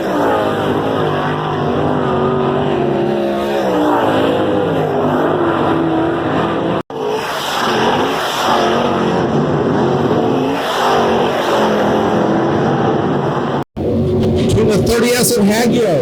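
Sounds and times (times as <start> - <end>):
race car engines running hard: 0.0 - 16.0.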